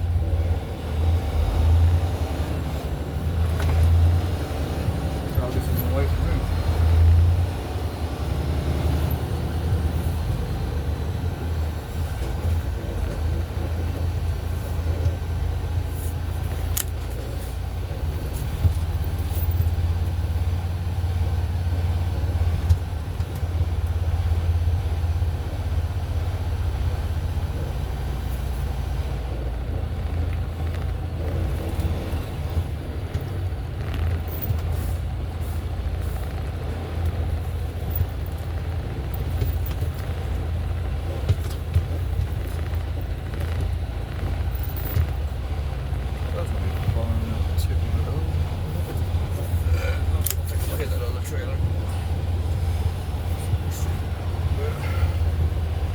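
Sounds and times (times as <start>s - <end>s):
diesel truck engine drone: 0.0s - 55.9s
road noise: 0.0s - 55.9s.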